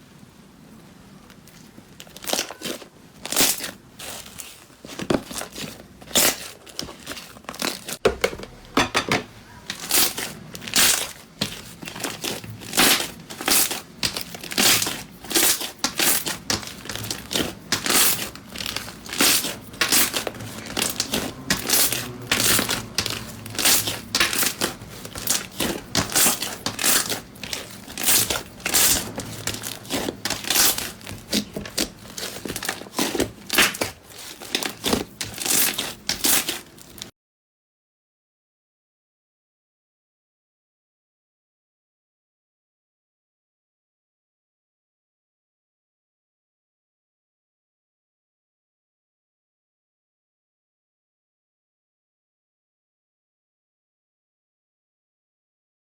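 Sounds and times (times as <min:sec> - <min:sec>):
slime crackling and squelching: 0:01.2 - 0:08.0, 0:09.4 - 0:37.1.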